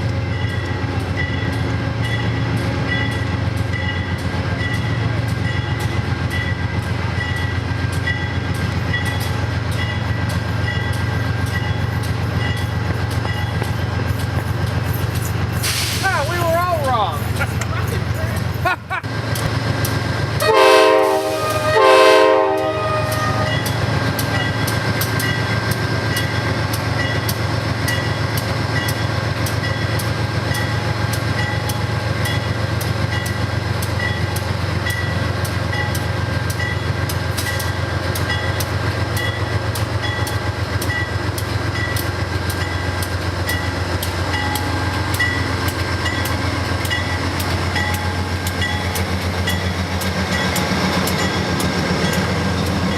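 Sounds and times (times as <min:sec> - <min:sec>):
train wheels clicking over rails: 0:00.0 - 0:20.4, 0:22.5 - 0:52.9
low train rumble: 0:00.0 - 0:52.9
train horn blasts: 0:20.4 - 0:23.7.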